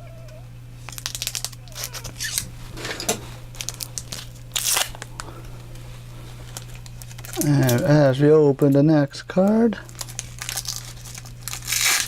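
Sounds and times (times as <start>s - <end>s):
foil wrapper crinkling and tearing: 0.8s - 2.5s, 3.5s - 5.3s, 6.4s - 8.0s, 9.8s - 12.0s.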